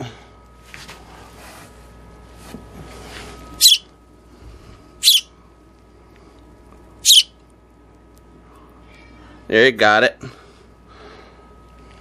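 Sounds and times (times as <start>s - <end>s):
baby sparrow chirping: 3.6s - 3.8s, 5.0s - 5.3s, 7.0s - 7.3s.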